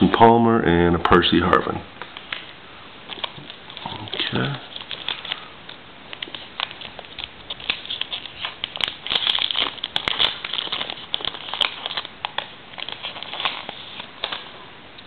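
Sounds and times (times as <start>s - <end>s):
card pack wrapper tearing: 3.1s - 5.5s, 6.1s - 14.5s
cards rustling and clicking: 3.1s - 14.6s.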